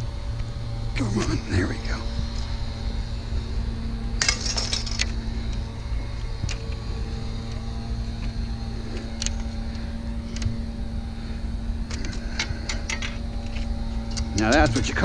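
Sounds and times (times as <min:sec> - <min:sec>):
low rumble with hum: 0:00.0 - 0:15.0
small metal parts clinking: 0:04.2 - 0:05.2.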